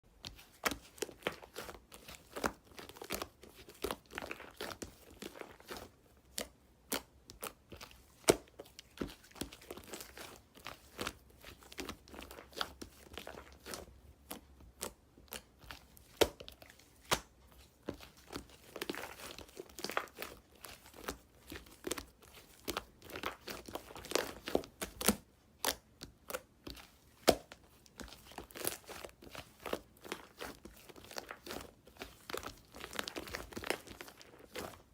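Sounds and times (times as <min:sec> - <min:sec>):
bread tearing and crinkling: 0:26.6 - 0:34.9.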